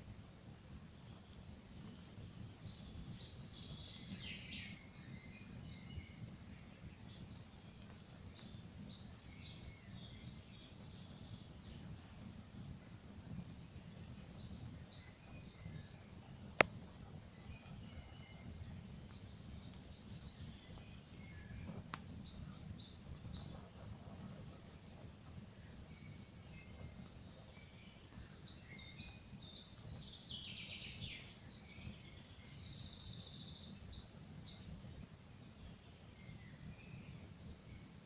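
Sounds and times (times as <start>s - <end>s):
forest birds chirping: 0.0s - 38.0s
campfire burning and popping: 18.7s - 25.9s.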